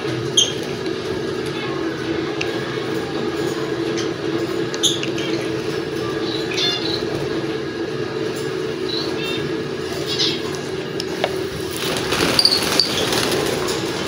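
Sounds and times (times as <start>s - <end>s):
caged birds chirping: 3.2s - 14.0s.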